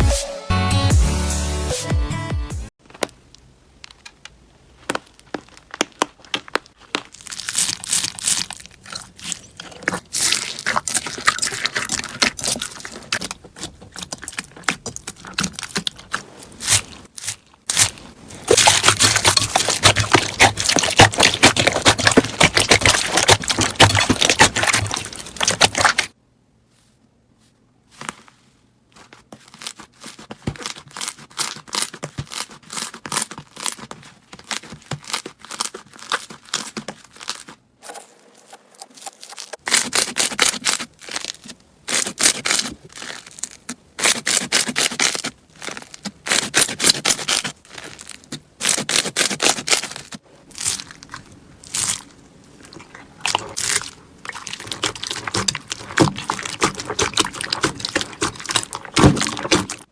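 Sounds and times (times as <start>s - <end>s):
slime squeezed crackling: 4.8s - 26.2s, 29.5s - 59.9s.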